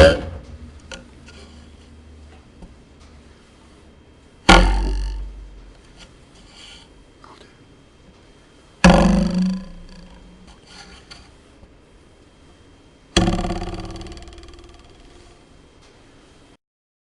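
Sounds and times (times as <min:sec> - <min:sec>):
ruler twanging: 0:00.0 - 0:01.6, 0:04.5 - 0:05.6, 0:08.8 - 0:11.2, 0:13.2 - 0:15.4.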